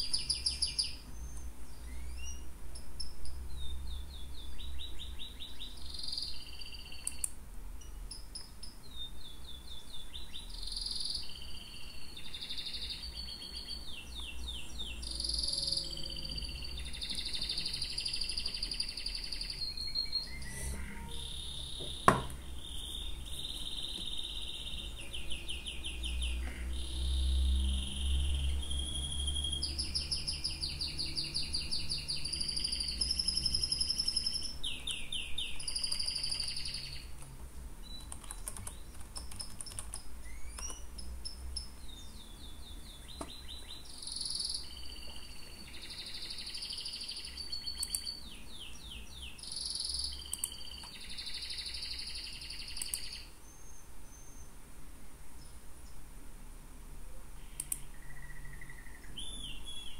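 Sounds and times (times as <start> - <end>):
birdsong chirping and trilling: 0.0 - 54.6, 57.4 - 59.9
sharp click: 47.7 - 48.1, 50.3 - 51.0, 52.8 - 53.2, 57.6 - 57.9.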